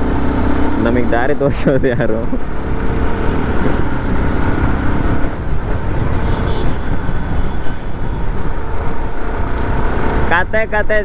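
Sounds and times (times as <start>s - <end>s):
motorcycle engine: 0.0s - 10.5s
wind rumble on microphone: 3.2s - 11.0s.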